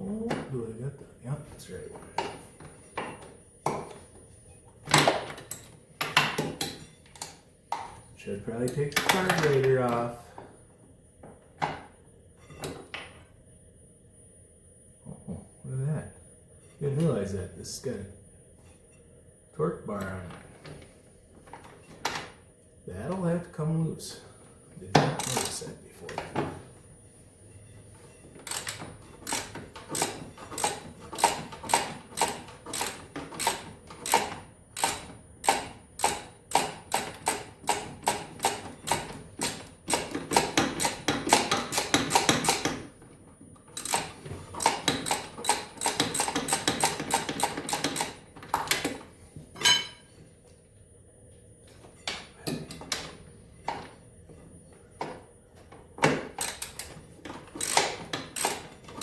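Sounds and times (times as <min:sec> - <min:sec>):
ratchet wrench clicking: 0:25.2 - 0:25.6, 0:28.5 - 0:42.8, 0:43.8 - 0:48.2, 0:56.4 - 0:56.9, 0:57.5 - 0:59.0.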